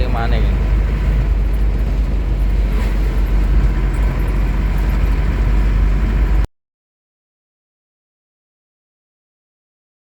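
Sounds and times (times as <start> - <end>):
diesel engine running: 0.0 - 6.5
road noise: 0.0 - 6.5.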